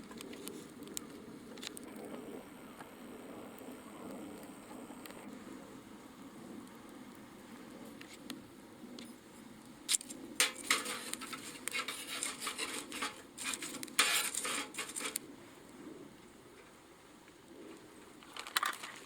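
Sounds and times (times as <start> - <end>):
metal cookware clinking: 10.4 - 15.2.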